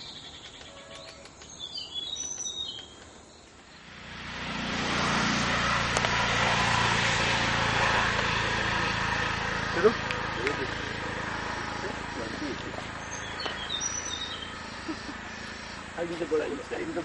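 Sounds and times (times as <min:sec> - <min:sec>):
small bird chirping: 0:00.0 - 0:03.9, 0:11.4 - 0:16.0
loud steady rushing noise: 0:03.8 - 0:17.0.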